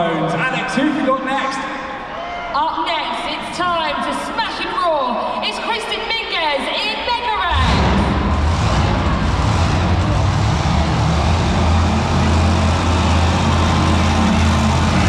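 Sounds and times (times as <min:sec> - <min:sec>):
monster truck engine running: 0:07.5 - 0:15.0.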